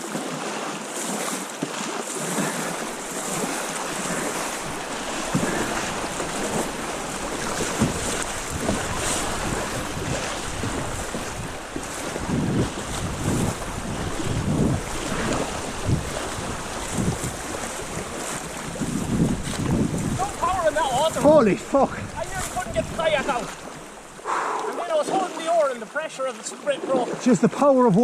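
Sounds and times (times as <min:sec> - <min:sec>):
river water rushing: 0:00.0 - 0:28.0
wind buffeting microphone: 0:02.4 - 0:24.2
low thuds: 0:02.8 - 0:17.4.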